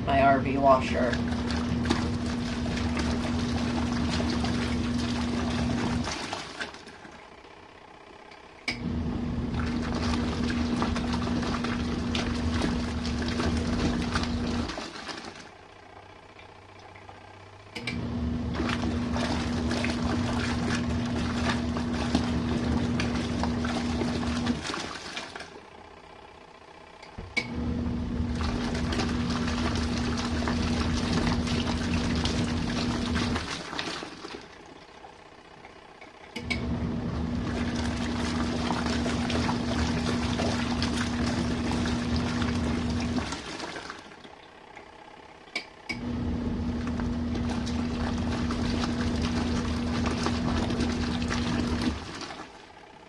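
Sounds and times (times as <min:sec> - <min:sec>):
water churning in drum: 0:00.0 - 0:08.0, 0:08.7 - 0:26.1, 0:27.2 - 0:45.0, 0:45.9 - 0:53.0
washing machine motor humming: 0:00.0 - 0:53.0
washing machine click: 0:08.3 - 0:08.9, 0:17.7 - 0:20.0, 0:27.0 - 0:27.6, 0:36.0 - 0:36.8.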